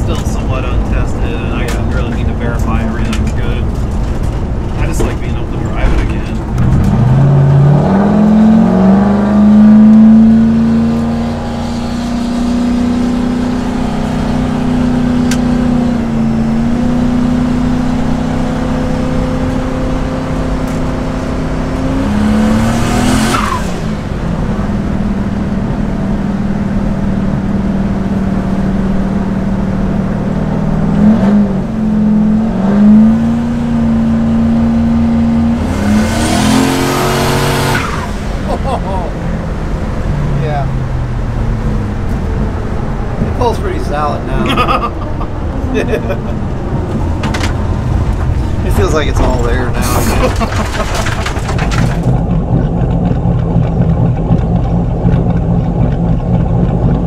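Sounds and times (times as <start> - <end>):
car engine revving from inside cabin: 6.6 - 23.8, 29.6 - 38.4.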